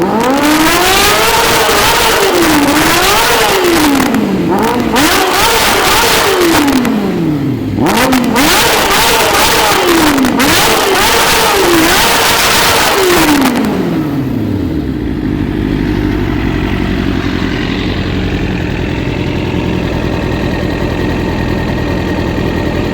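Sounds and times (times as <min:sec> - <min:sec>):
exhaust popping and crackling: 0:00.0 - 0:22.9
motorcycle engine revving: 0:00.0 - 0:22.9
motorcycle engine idling: 0:02.7 - 0:08.5, 0:13.6 - 0:22.9.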